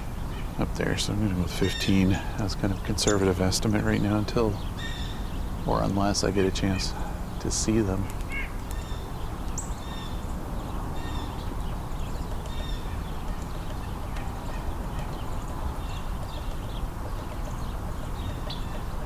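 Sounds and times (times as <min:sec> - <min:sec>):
low background rumble: 0:00.0 - 0:18.9
sparrows chirping: 0:00.0 - 0:19.0.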